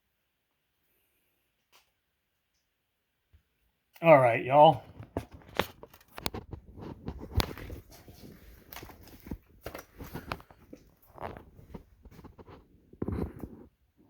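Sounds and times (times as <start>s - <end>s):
objects being handled: 4.9s - 13.8s.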